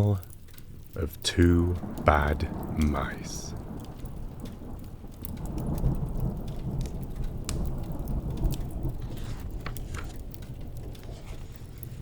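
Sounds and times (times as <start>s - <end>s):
low rumble of thunder: 0.0s - 12.0s
rain falling: 0.0s - 12.0s
wood fire crackling: 0.0s - 12.0s.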